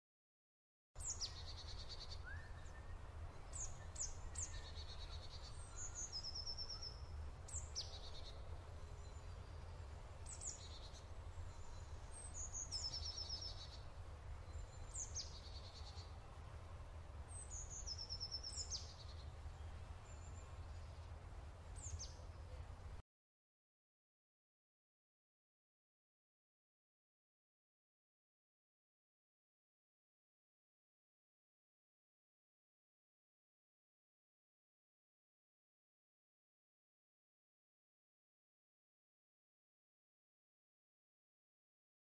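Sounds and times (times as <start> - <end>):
birds singing: 1.0 - 16.3, 17.3 - 22.7.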